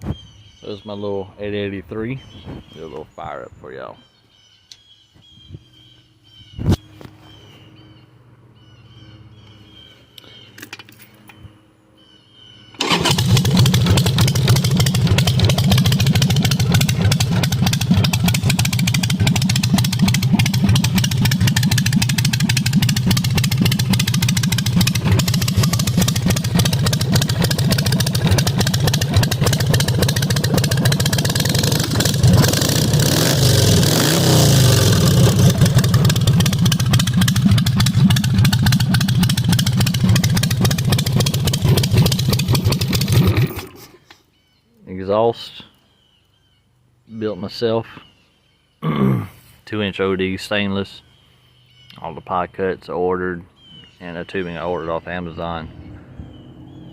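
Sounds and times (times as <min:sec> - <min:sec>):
motorcycle engine running loudly: 0:12.8 - 0:43.7.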